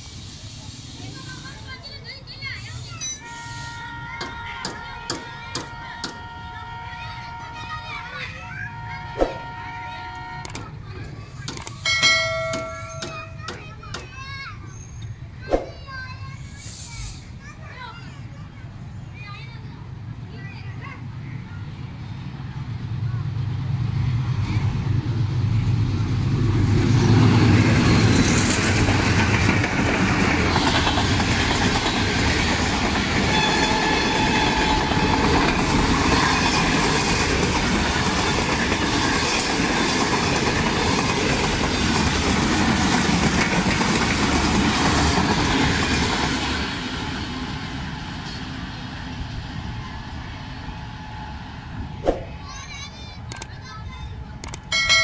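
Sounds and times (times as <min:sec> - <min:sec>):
diesel locomotive engine: 0:00.0 - 0:55.0
wheels clattering over rail joints: 0:27.4 - 0:46.9.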